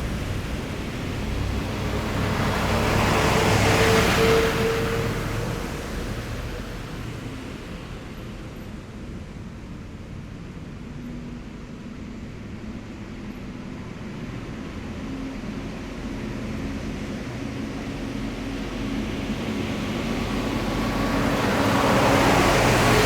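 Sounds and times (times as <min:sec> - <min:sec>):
heavy diesel vehicle passing: 0:00.0 - 0:08.9, 0:15.5 - 0:23.0.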